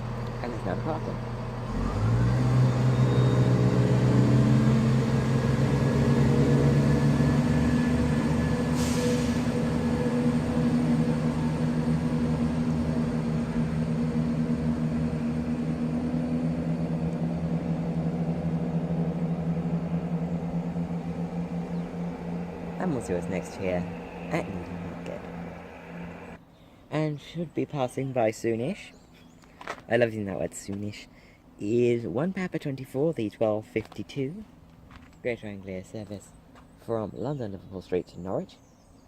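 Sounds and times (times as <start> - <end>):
diesel train engines accelerating: 0.0 - 26.4.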